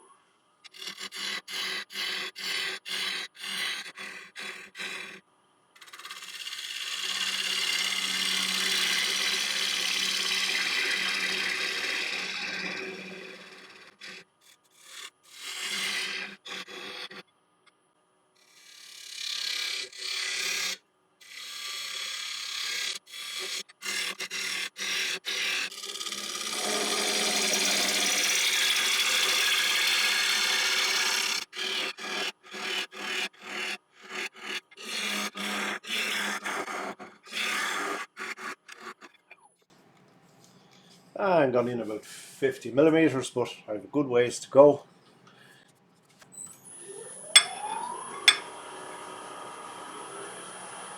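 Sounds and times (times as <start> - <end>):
turning tool scraping wood: 0.7 - 5.2, 5.8 - 17.2, 18.6 - 39.4, 40.8 - 46.3
lathe humming: 6.6 - 13.9, 47.4 - 50.9.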